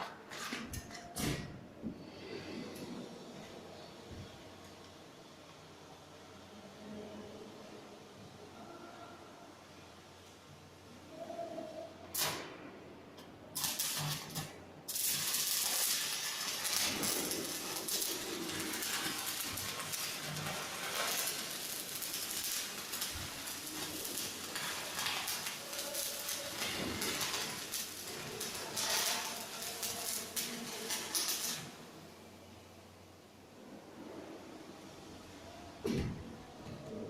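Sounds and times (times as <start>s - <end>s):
arc welding crackling: 12.1s - 12.5s, 13.5s - 31.9s
welding arc strikes: 13.6s - 31.8s.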